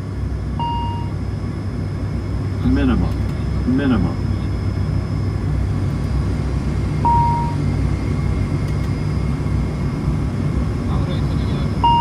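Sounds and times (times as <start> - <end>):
turboprop engines droning: 0.0 - 12.0
short electronic beep: 0.6 - 1.1, 7.0 - 7.6.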